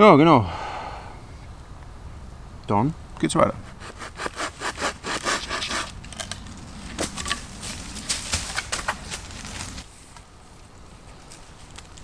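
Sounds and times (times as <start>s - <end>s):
branches rustling and snapping: 3.7s - 12.0s.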